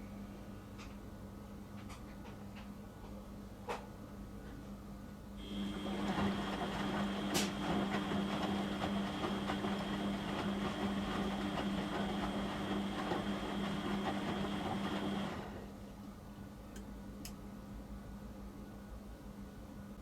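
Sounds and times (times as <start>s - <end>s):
washing machine high whine: 5.4s - 16.0s.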